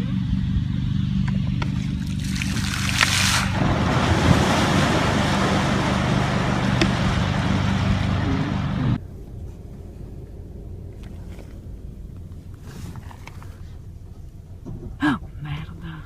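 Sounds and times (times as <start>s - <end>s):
water surging and splashing: 1.6s - 9.0s.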